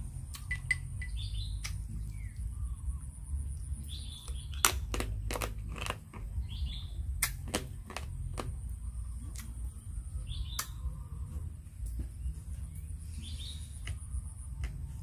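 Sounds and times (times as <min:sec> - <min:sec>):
faint birds chirping: 0:00.0 - 0:15.0
crunching and wet smacking eating: 0:03.5 - 0:09.8.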